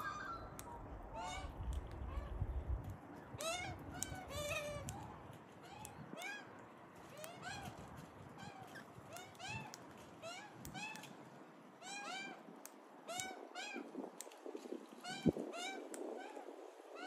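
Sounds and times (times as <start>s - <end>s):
bird calling: 0.0s - 2.3s.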